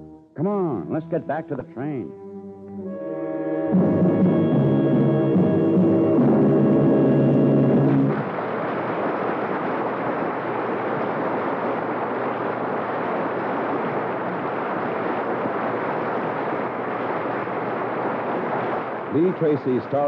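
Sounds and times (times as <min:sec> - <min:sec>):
music cue: 0:00.0 - 0:08.2.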